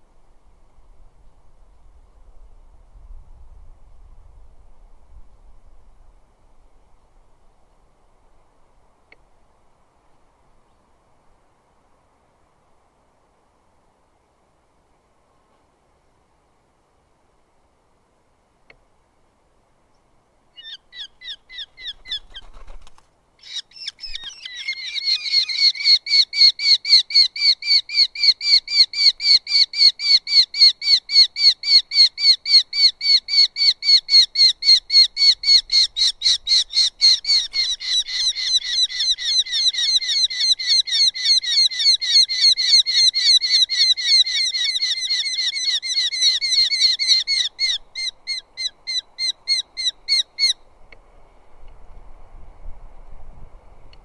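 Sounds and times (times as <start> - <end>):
bird rapidly repeated calls: 20.6 - 50.6.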